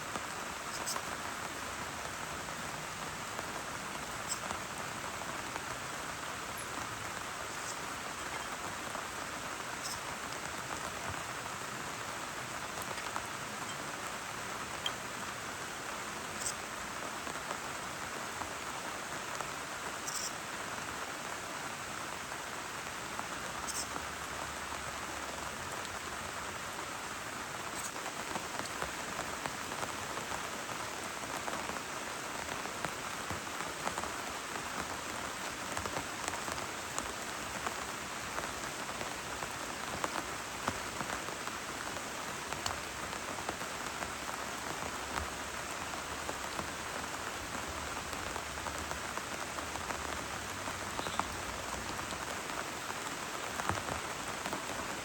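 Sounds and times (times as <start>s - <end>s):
heavy rain: 0.0s - 55.0s
raindrops ticking close by: 0.0s - 55.0s.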